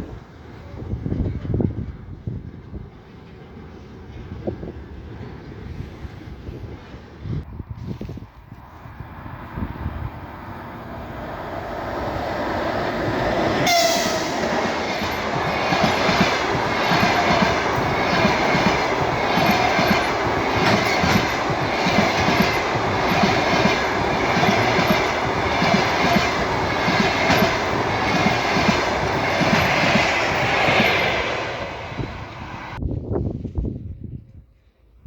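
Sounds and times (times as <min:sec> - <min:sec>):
train wheels clattering over rails: 0:12.4 - 0:32.6.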